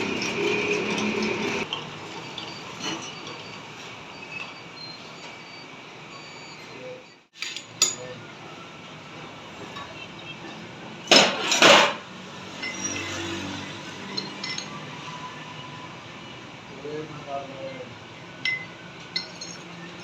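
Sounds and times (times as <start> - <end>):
metal clinking and knocking: 7.4 - 8.1, 14.1 - 14.8, 18.4 - 20.0.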